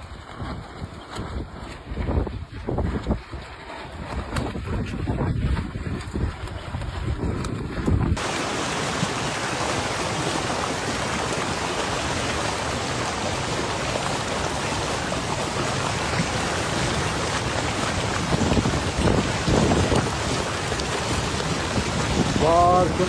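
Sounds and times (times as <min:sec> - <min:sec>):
rushing water: 0:00.0 - 0:23.0
wind on microphone: 0:00.0 - 0:23.0.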